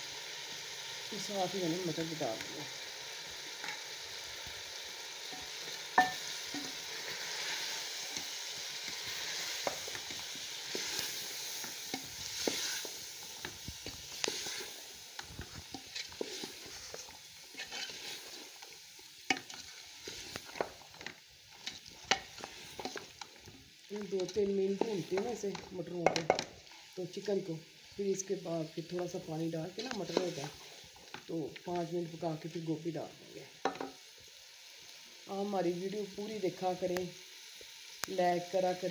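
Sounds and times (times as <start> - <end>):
food sizzling in a pot: 0.0 - 38.9
spoon scraping and knocking pot: 5.4 - 6.7.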